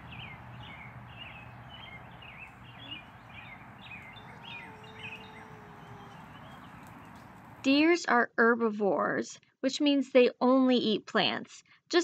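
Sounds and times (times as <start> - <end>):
small birds chirping: 0.0 - 7.6
outdoor background hiss: 0.0 - 7.8.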